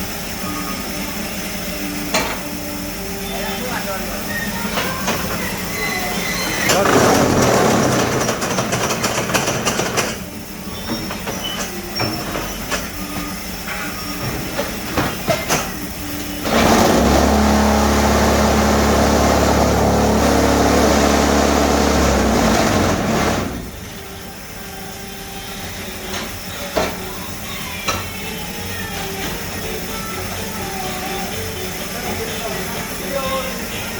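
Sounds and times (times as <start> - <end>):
metal clanks and knocks: 6.4 - 15.8
machine vibrator loud low hum: 15.8 - 25.8.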